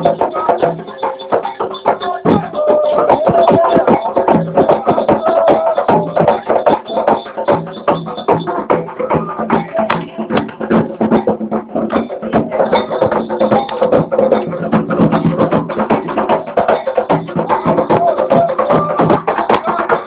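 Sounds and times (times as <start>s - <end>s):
voices singing together: 0.0s - 13.8s, 16.2s - 20.0s
rapid drumming: 0.0s - 20.0s
sharp clacking strikes: 9.7s - 16.1s.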